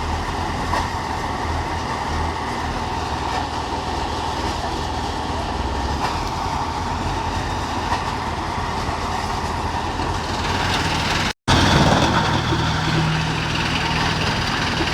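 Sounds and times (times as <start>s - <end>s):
wood chipper rattling: 7.2s - 14.9s.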